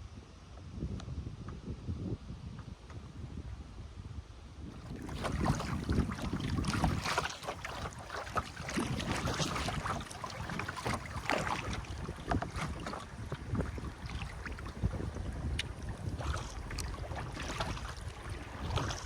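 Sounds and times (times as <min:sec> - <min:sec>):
wind rumbling on microphone: 0:00.0 - 0:19.0
kayak paddle splashing water: 0:04.8 - 0:19.0.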